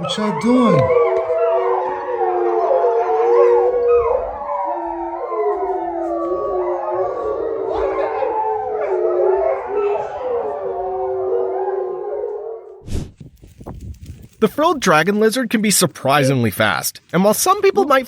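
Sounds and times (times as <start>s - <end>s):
animals howling in chorus: 0.0s - 12.8s.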